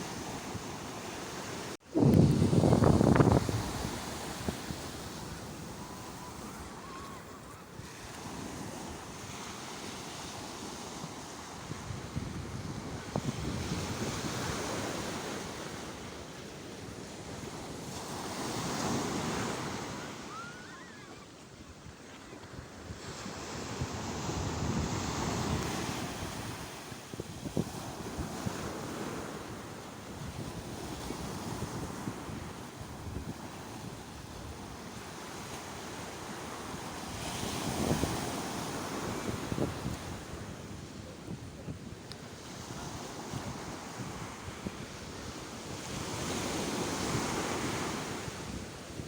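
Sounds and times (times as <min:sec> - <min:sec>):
sea waves breaking on shore: 0:00.0 - 0:49.0
wind buffeting microphone: 0:01.9 - 0:09.2, 0:10.9 - 0:15.8, 0:22.5 - 0:29.4.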